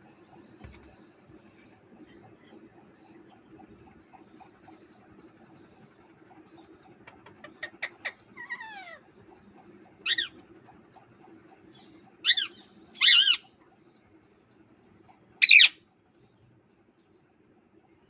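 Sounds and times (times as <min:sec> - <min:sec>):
parrot squawking: 0:07.5 - 0:09.0, 0:10.0 - 0:10.4, 0:12.2 - 0:13.5, 0:15.4 - 0:15.8.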